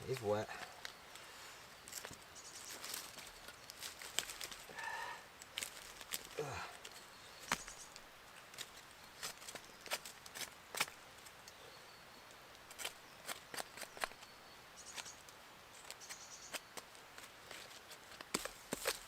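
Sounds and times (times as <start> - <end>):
footsteps on twigs and leaves: 0.0 - 11.4, 12.6 - 14.3, 15.8 - 19.0
faint bird chirps: 11.4 - 16.8.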